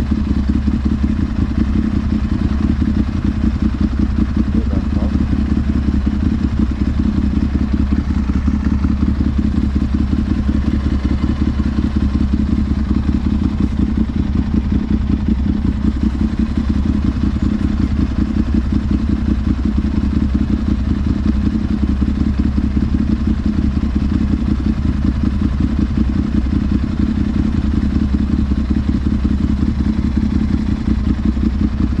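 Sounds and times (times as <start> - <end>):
motorcycle engine idling: 0.0 - 32.0.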